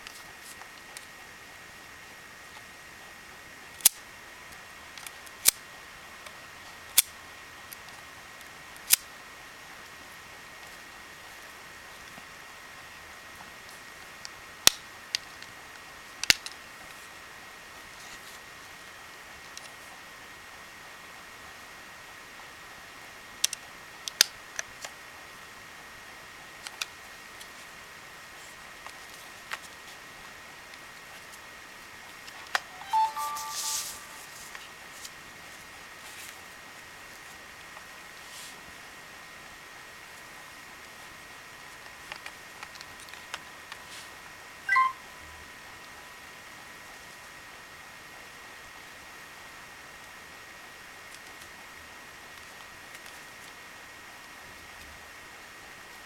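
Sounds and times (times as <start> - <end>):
faint steady hiss: 27.0 - 47.5
thin high steady tone: 32.6 - 34.6, 44.7 - 45.4.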